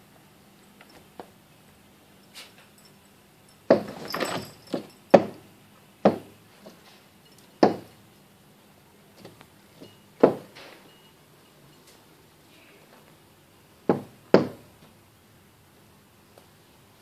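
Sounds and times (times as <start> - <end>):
window rattle: 3.6 - 5.4.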